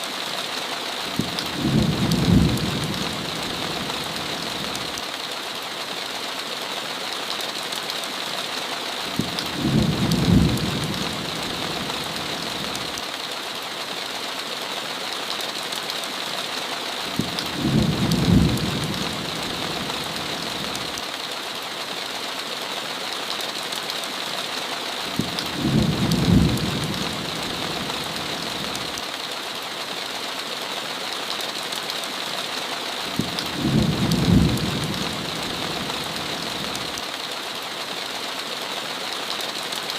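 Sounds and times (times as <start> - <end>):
heavy rain on a window: 0.0 - 39.9
low thunder rumble: 1.2 - 3.9, 9.6 - 11.9, 17.6 - 19.9, 25.6 - 27.9, 33.2 - 36.2.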